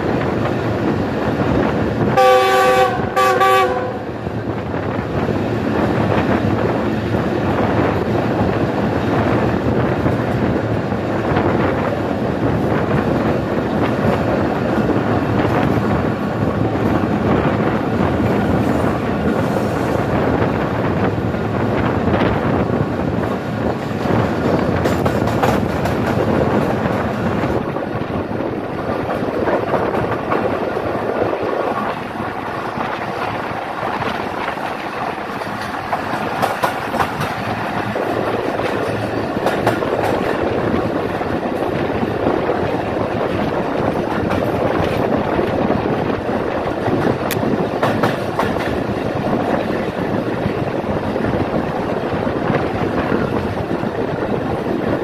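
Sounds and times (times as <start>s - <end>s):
passenger train rolling over track: 0.0s - 55.0s
locomotive horn blasts: 2.2s - 4.1s.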